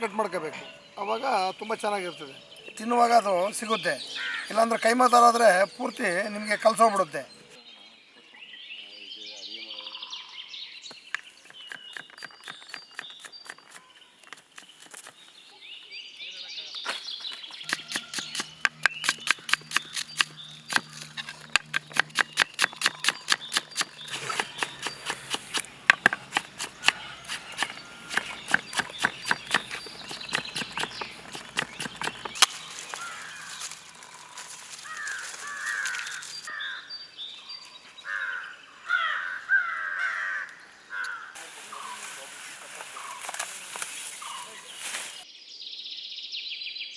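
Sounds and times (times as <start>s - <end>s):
faint birds chirping: 0.0s - 46.9s
knife chopping on cutting board: 17.7s - 20.9s, 22.0s - 32.4s.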